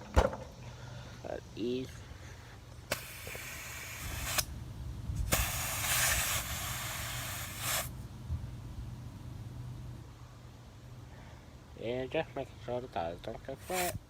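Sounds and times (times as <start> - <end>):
compressed air hissing: 2.0 - 8.0, 13.6 - 14.0.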